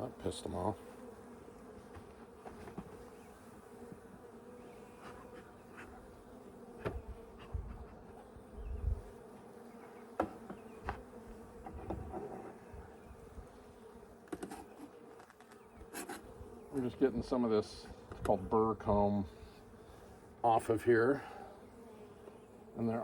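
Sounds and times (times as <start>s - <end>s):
bees buzzing: 0.0s - 23.0s
clicks and knocks from hive handling: 1.5s - 3.2s, 6.8s - 8.2s, 9.7s - 12.7s, 14.2s - 17.0s, 17.8s - 18.4s.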